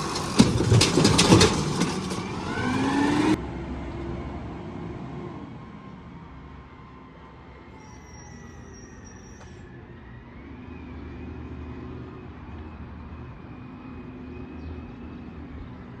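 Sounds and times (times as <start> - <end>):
garbage truck engine rumble: 0.0 - 3.4.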